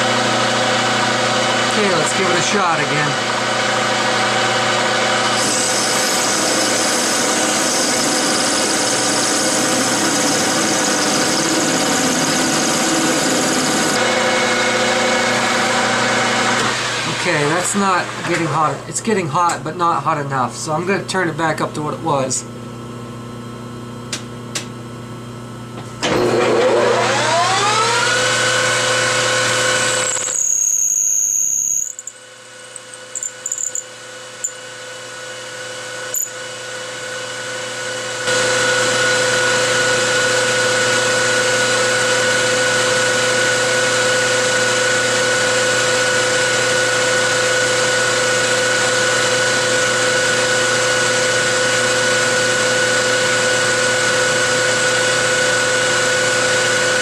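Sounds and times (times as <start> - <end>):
lathe spindle whining: 0.1 - 18.6, 38.3 - 57.0.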